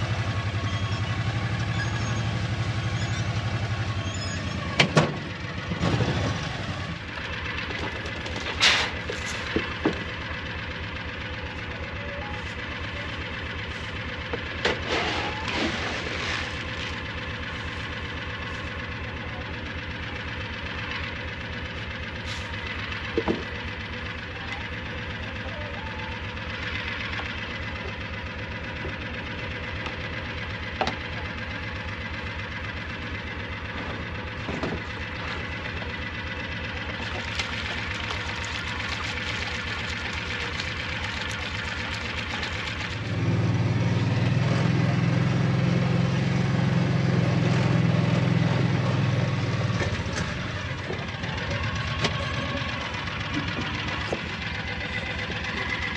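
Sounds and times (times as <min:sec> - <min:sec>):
engine running steadily: 0:00.0 - 0:55.9.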